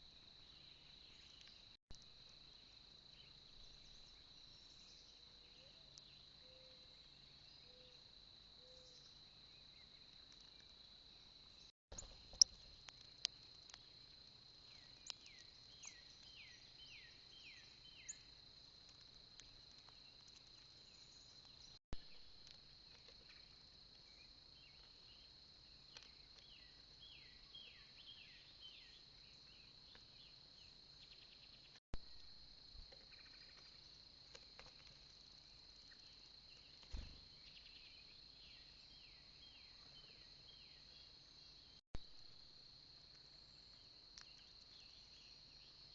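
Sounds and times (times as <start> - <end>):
songbird singing down-slurred notes: 2.5 - 10.1, 14.6 - 18.4, 23.3 - 31.8, 35.8 - 41.8.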